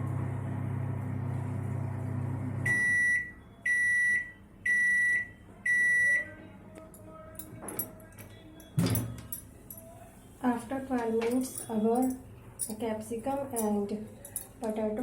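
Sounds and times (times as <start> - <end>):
microwave oven humming: 0.0 - 6.6
microwave beeps: 1.2 - 6.3.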